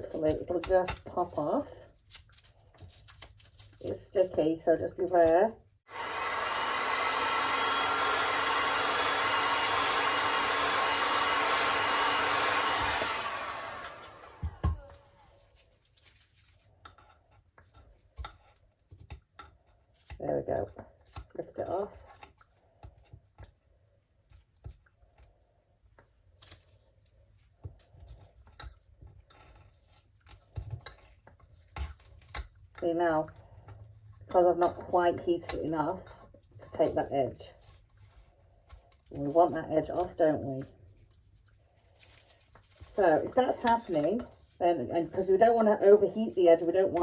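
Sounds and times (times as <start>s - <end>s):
heat gun blowing: 5.9s - 15.3s.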